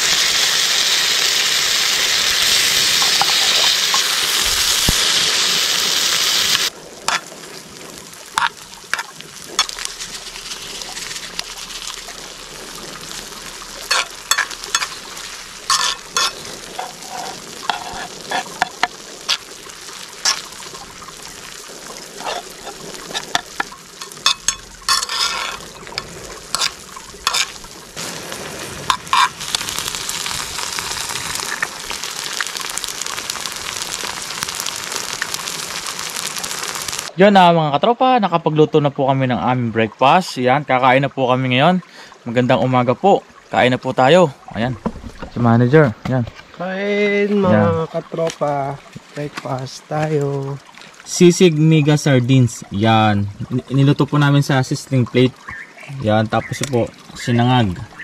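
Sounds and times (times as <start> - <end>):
food frying with loud hiss: 0.0 - 37.2, 46.8 - 58.0
quiet sizzling: 6.8 - 33.2.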